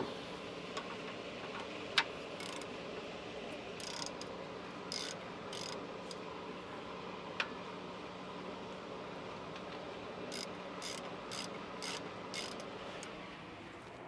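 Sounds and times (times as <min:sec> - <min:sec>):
socket ratchet clicking: 0:02.4 - 0:02.7, 0:03.8 - 0:04.3, 0:04.9 - 0:06.2, 0:10.3 - 0:13.1.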